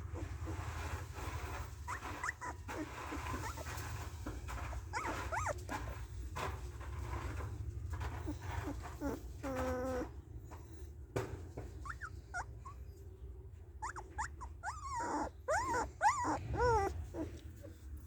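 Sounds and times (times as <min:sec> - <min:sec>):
puppy whimpering: 0:00.0 - 0:06.1, 0:08.0 - 0:10.8, 0:11.7 - 0:13.0, 0:13.8 - 0:18.0.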